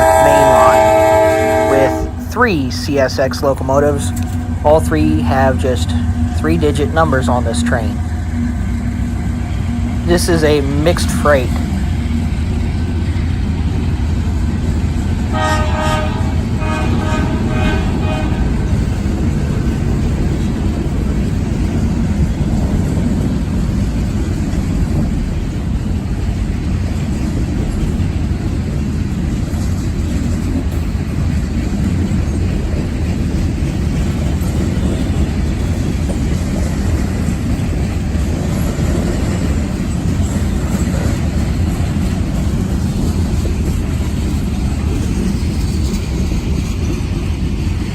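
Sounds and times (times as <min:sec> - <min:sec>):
locomotive horn blasts: 0:00.0 - 0:02.3, 0:15.3 - 0:18.6
freight train rumbling by: 0:00.0 - 0:47.9.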